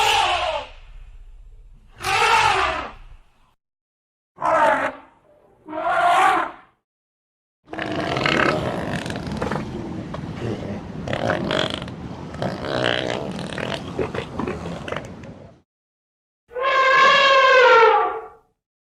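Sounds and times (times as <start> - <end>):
elephant rumbling growls: 7.7 - 15.2.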